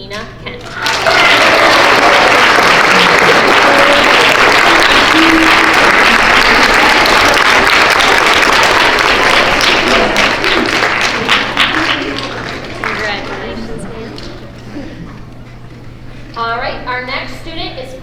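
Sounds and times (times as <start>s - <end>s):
children applauding: 0.6s - 14.6s.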